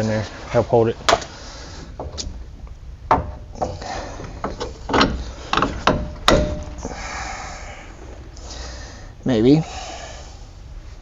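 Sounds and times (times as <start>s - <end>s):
metal parts knocking and clanking: 2.0s - 7.0s.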